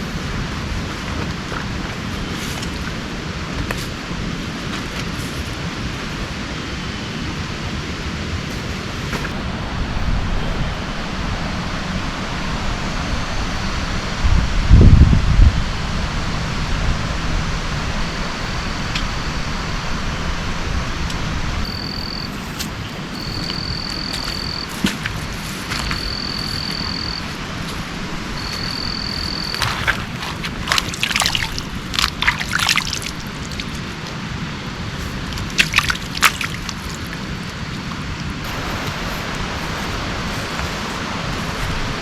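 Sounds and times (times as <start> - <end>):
sharp clicks and splashes: 0.0 - 5.6, 21.7 - 39.4
heavy rain: 15.6 - 42.0.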